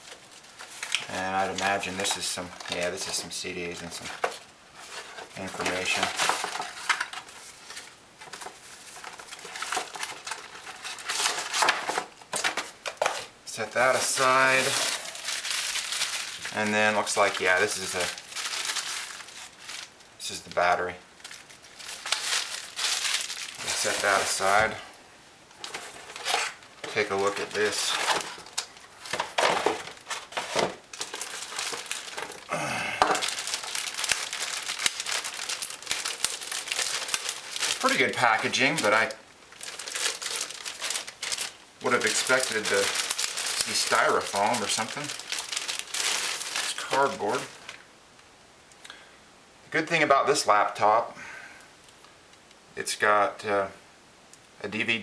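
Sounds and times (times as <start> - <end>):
packaging rustling and tapping: 4.0 - 13.3, 13.9 - 20.0, 20.6 - 24.8, 25.5 - 47.8.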